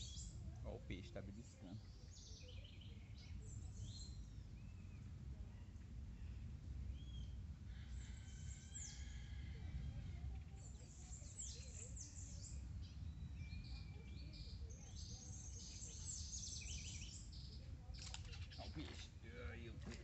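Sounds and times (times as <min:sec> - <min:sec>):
birds chirping and whistling: 0:00.0 - 0:00.4, 0:01.8 - 0:04.9, 0:10.6 - 0:19.2.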